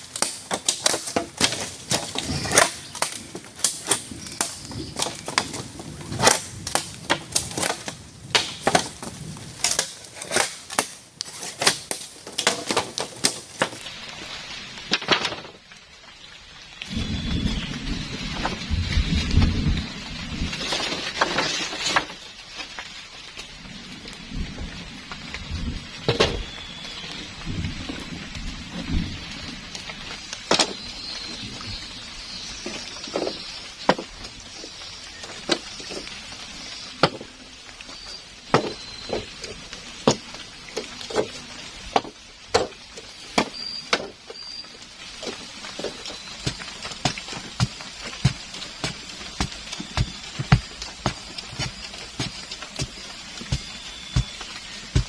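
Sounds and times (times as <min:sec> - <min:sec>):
heavy rain: 0:00.0 - 0:55.0
thunder rumbling: 0:16.8 - 0:20.8.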